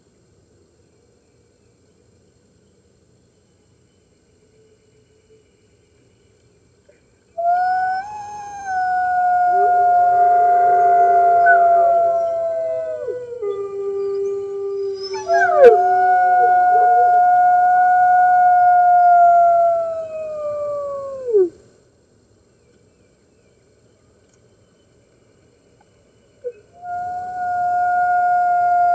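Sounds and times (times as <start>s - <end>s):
wolves howling: 7.4s - 21.5s.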